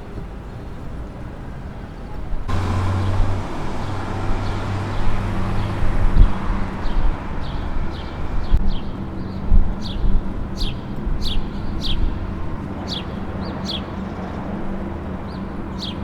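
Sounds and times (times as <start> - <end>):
street traffic rush: 0.0 - 16.0
engine humming: 2.5 - 8.6
small birds chirping: 2.5 - 12.1.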